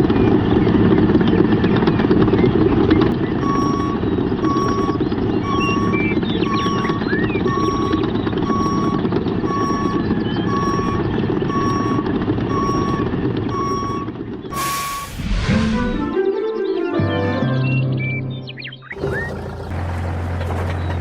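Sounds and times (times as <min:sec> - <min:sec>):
engine rumble: 0:00.0 - 0:16.2, 0:18.8 - 0:21.0
vehicle reversing alarm beeping: 0:02.6 - 0:16.1, 0:18.8 - 0:21.0
short whoosh: 0:14.6 - 0:16.2.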